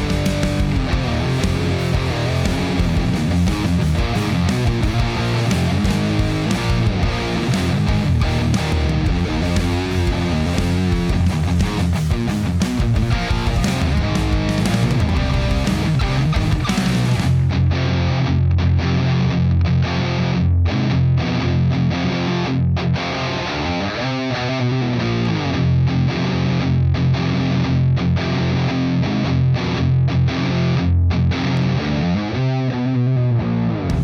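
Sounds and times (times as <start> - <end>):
distorted electric guitar riffing: 0.0 - 34.0.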